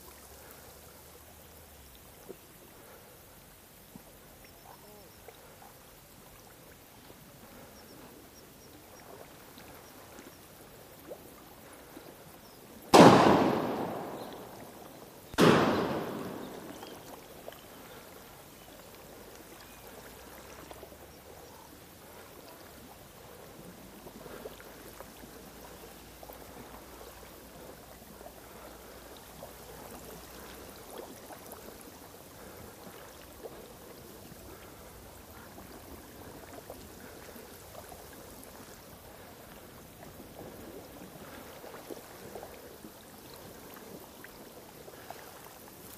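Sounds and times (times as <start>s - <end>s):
shotgun shots echoing: 12.9s - 17.1s.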